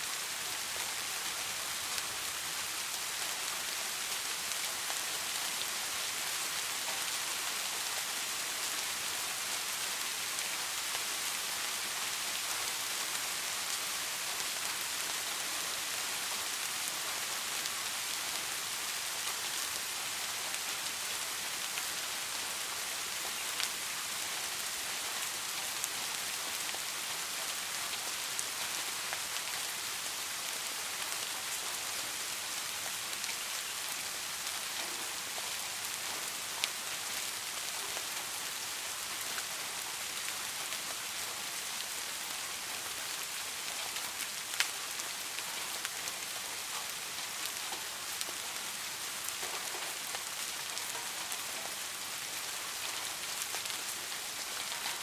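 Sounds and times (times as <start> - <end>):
steady rain falling: 0.0 - 55.0
raindrops ticking on a surface: 0.1 - 55.0.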